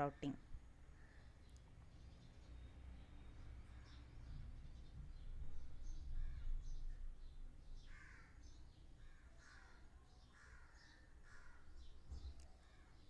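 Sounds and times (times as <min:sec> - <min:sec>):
faint bird calls: 0:05.8 - 0:13.0.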